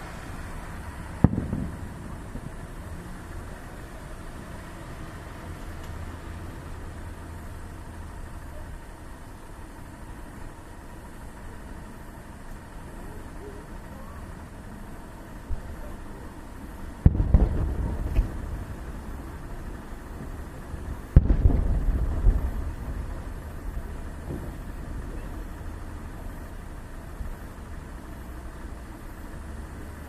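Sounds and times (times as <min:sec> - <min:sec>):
rolling echo: 0:00.0 - 0:04.1, 0:13.8 - 0:28.2
fireworks shells booming: 0:00.0 - 0:04.4, 0:13.6 - 0:28.6
low background rumble: 0:00.0 - 0:30.0
small firework pops: 0:01.1 - 0:02.6, 0:05.6 - 0:06.0, 0:17.0 - 0:18.6, 0:21.0 - 0:23.4, 0:24.1 - 0:25.3.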